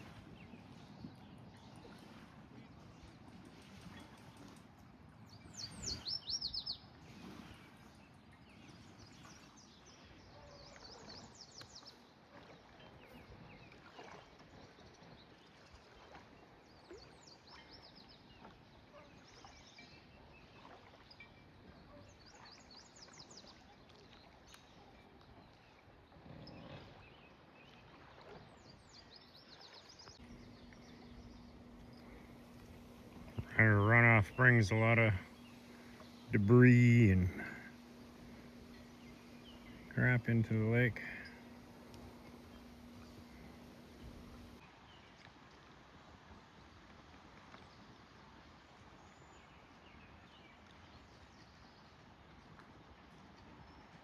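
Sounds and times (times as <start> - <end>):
faint outdoor background noise: 0.0 - 54.0
songbird trilling: 5.5 - 6.8, 30.2 - 44.6.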